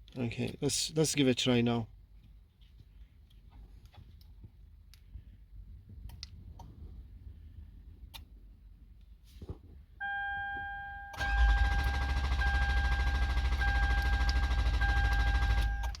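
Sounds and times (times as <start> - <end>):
electronic warning tone: 10.0 - 16.0
starter motor cranking engine: 11.2 - 16.0.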